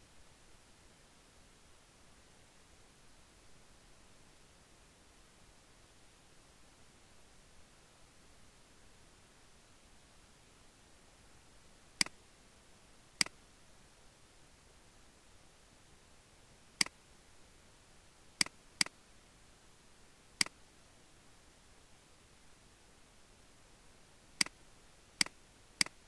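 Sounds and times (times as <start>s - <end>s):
faint steady hiss: 0.0s - 26.0s
computer mouse clicking: 25.2s - 26.0s.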